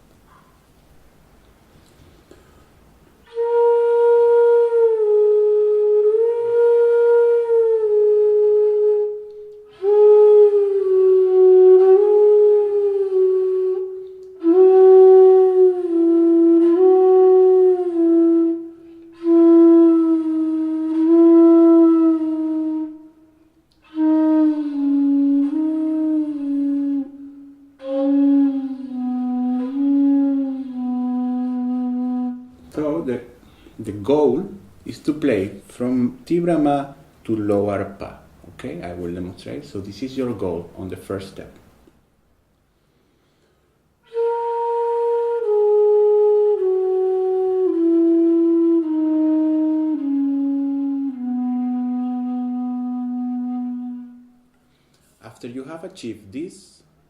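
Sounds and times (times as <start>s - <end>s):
bamboo flute playing long notes: 3.2s - 33.6s, 44.0s - 54.8s.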